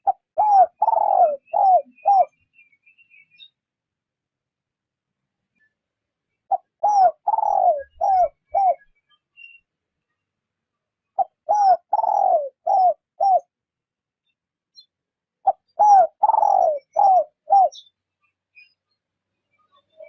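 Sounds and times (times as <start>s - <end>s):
dove cooing: 0.0s - 2.4s, 6.5s - 8.8s, 11.2s - 13.5s, 15.4s - 17.9s.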